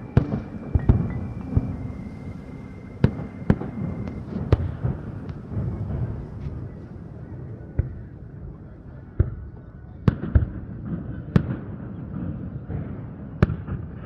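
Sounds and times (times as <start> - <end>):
fireworks bangs: 0.0 - 14.0
low background rumble: 0.0 - 14.0.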